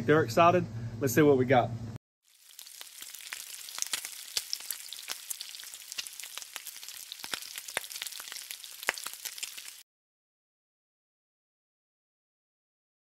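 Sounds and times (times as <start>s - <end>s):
crackles and pops of frying: 2.2s - 9.8s
food sizzling on a griddle: 2.2s - 9.8s.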